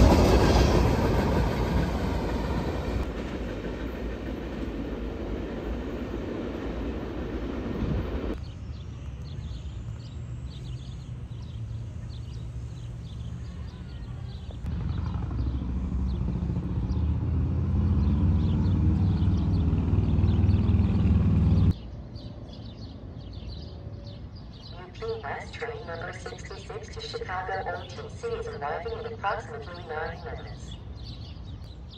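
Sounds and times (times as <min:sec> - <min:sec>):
diesel train approaching: 0:00.0 - 0:31.9
birds chirping: 0:06.3 - 0:31.9.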